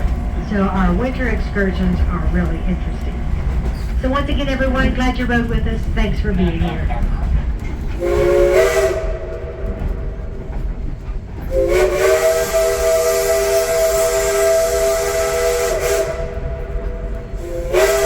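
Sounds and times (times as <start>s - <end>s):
steam hissing: 7.8s - 18.0s
steam locomotive whistle: 8.0s - 10.4s, 11.4s - 18.0s.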